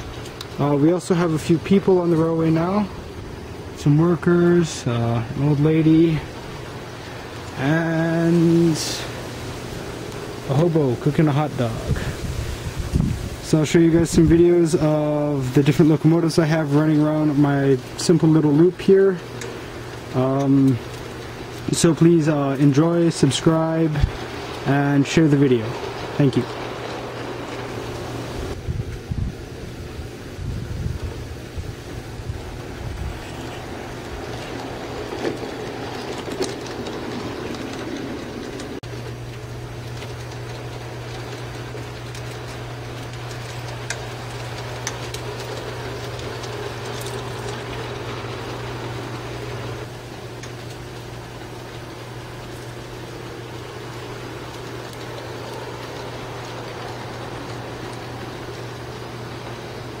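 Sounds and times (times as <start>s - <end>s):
wheel and track noise: 0.0s - 60.0s
model train motor hum: 30.9s - 60.0s.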